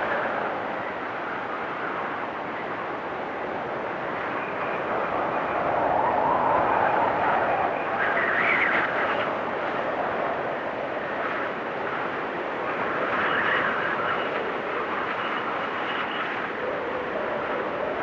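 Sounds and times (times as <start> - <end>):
blizzard wind gusting: 0.0 - 18.0.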